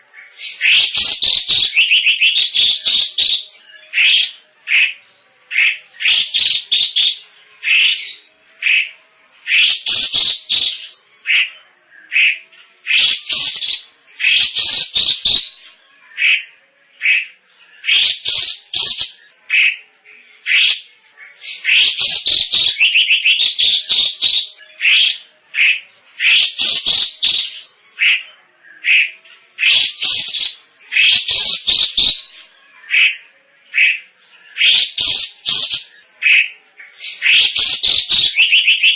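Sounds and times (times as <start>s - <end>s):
bird calling loudly: 21.5s - 28.2s, 34.6s - 38.9s.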